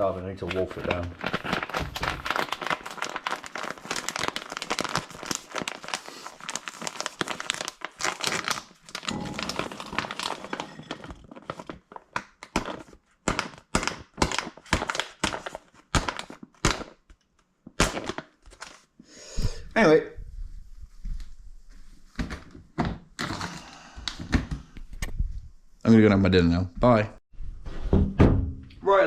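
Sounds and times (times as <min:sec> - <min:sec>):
plastic pouch crinkling: 0:00.4 - 0:16.8.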